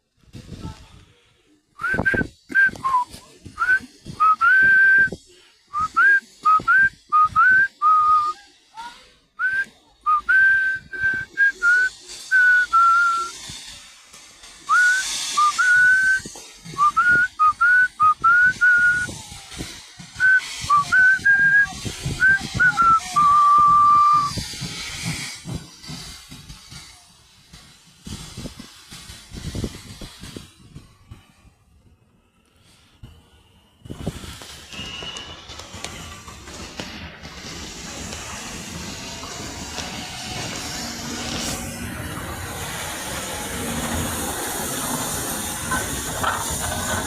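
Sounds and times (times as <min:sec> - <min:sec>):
bursts of hiss: 0:00.2 - 0:47.0
person whistling a tune: 0:01.8 - 0:08.4, 0:09.4 - 0:13.4, 0:14.7 - 0:19.2, 0:20.2 - 0:24.3.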